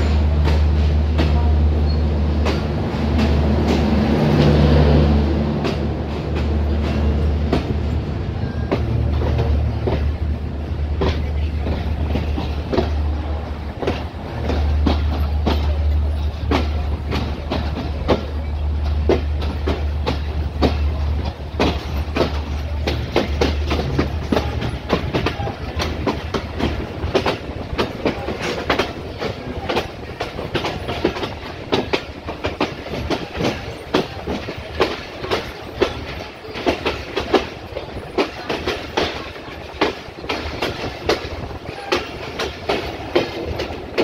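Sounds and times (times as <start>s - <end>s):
low train rumble: 0.0s - 44.0s
train wheels clicking over rail joints: 0.0s - 44.0s.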